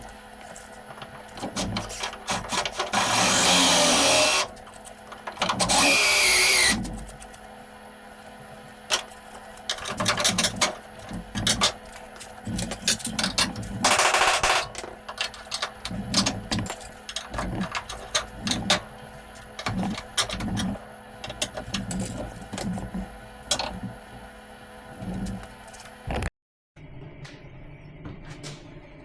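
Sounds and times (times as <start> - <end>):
power tool burst: 2.9 - 4.5, 5.6 - 6.8.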